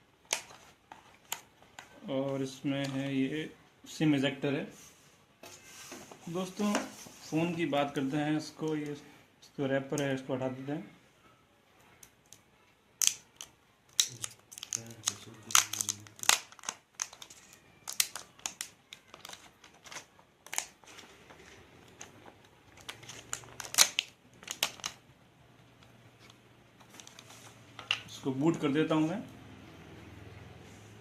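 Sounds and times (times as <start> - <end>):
plastic wrapping crinkling: 13.0 - 25.1, 25.7 - 28.6.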